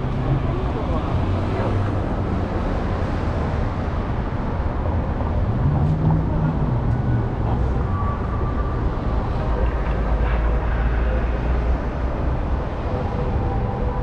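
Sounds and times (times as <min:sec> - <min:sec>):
train rumbling: 0:04.2 - 0:14.0.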